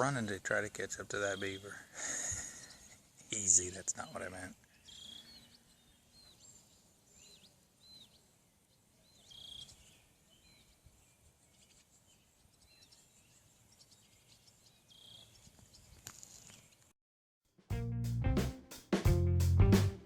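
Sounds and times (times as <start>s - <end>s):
faint bird chirps: 4.0s - 16.9s.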